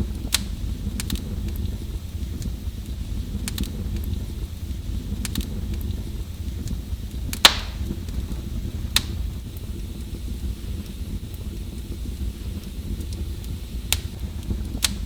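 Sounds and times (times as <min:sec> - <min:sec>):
wood fire crackling in fireplace: 0:00.0 - 0:15.0.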